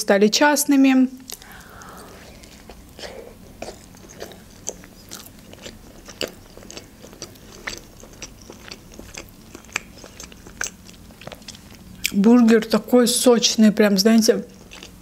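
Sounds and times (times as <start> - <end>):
chewing with wet mouth smacks: 1.2 - 12.8, 14.5 - 15.0.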